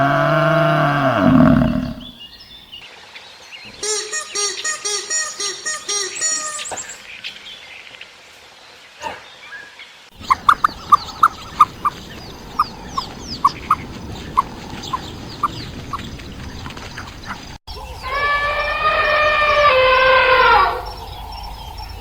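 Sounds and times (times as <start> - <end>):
high falling bird chirps: 0.0 - 2.8, 3.6 - 7.7, 9.6 - 22.0
animal pitched cries: 18.0 - 20.9.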